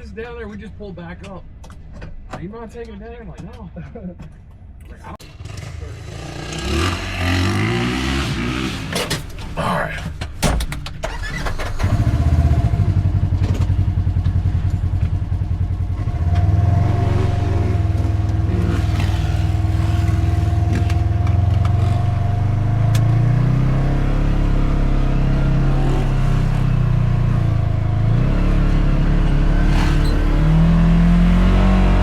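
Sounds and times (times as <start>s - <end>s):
utility vehicle engine running: 11.0s - 32.0s.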